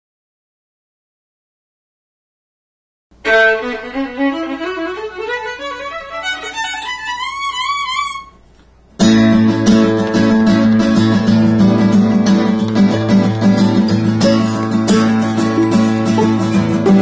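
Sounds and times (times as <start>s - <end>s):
fiddle playing: 3.2s - 8.4s, 15.5s - 17.0s
acoustic guitar strumming: 9.0s - 17.0s.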